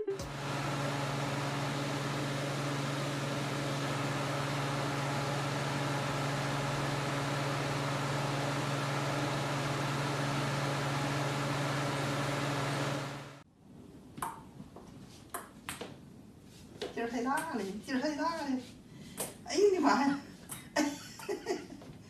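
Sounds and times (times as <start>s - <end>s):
machine hum: 0.0s - 13.4s.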